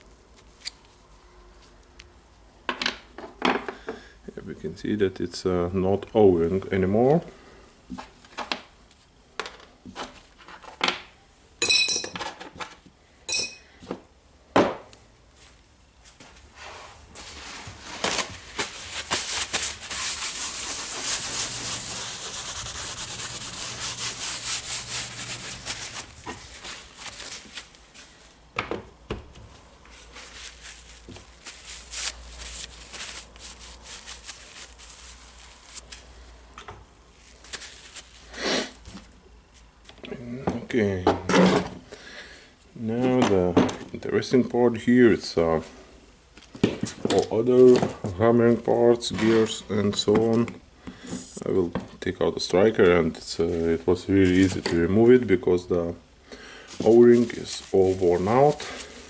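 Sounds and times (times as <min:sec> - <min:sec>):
rubbing or scrubbing: 0:16.6 - 0:27.7, 0:30.0 - 0:36.0, 0:56.7 - 0:59.0.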